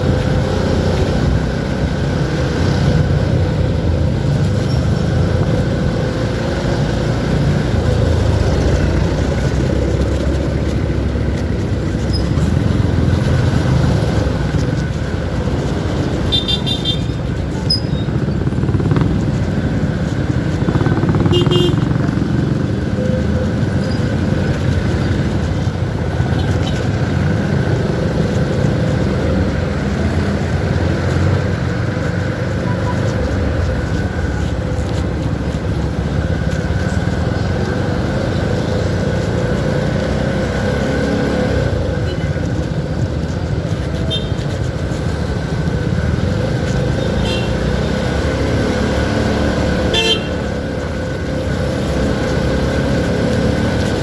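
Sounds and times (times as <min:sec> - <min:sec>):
motorcycle engine running: 0:00.0 - 0:54.0
wind and road noise: 0:00.0 - 0:54.0
horn toot: 0:21.3 - 0:21.9, 0:49.9 - 0:50.4.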